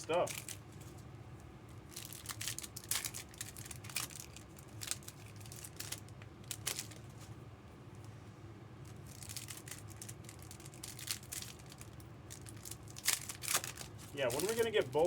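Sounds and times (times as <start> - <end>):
card wrappers crinkling and tearing: 0.2 - 0.6, 1.9 - 7.1, 8.9 - 15.0.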